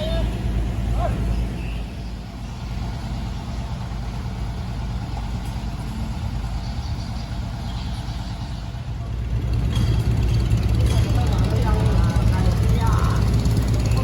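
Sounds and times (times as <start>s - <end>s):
boat diesel engine droning: 0.0s - 14.0s.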